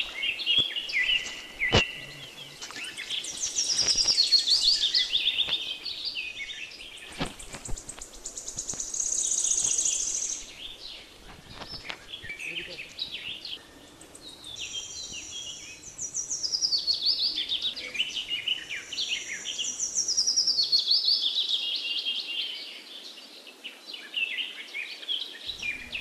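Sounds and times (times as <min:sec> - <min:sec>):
birds chirping and singing: 0:00.0 - 0:26.0.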